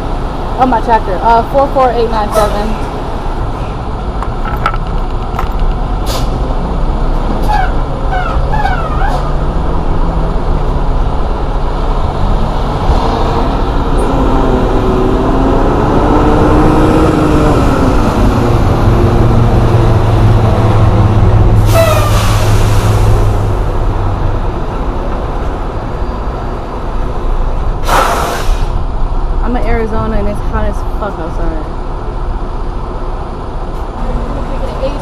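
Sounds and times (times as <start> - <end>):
truck engine running: 0.0 - 35.0
air hiss: 27.8 - 28.8.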